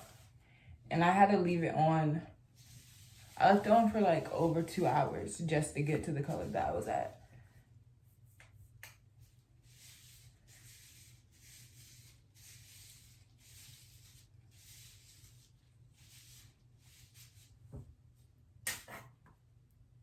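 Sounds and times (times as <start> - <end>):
hands rubbing hair: 2.6 - 7.2.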